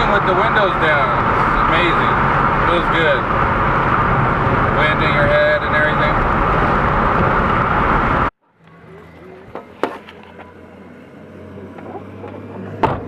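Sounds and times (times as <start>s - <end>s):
wind buffeting microphone: 0.0s - 8.3s
road noise inside car: 0.0s - 13.0s.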